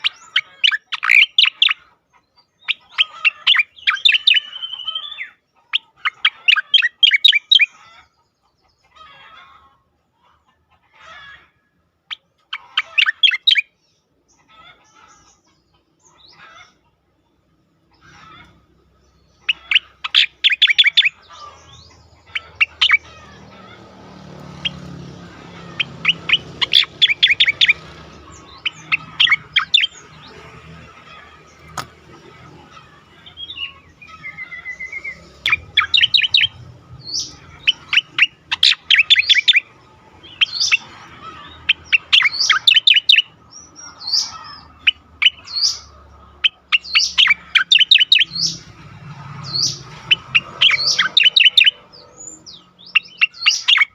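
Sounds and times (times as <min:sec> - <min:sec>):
bird chattering song: 0:00.0 - 0:09.4, 0:12.0 - 0:53.9
bird wavering whistle: 0:19.5 - 0:21.2, 0:25.8 - 0:27.8, 0:34.2 - 0:39.7, 0:41.9 - 0:43.3, 0:44.1 - 0:48.6, 0:49.6 - 0:51.8.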